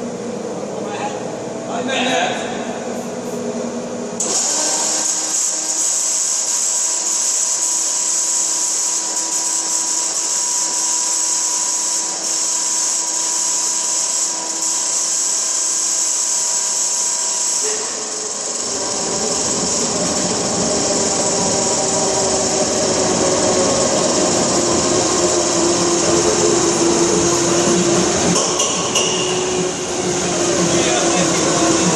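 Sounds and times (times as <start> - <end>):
diesel engine cranking whine: 14.0 - 31.9.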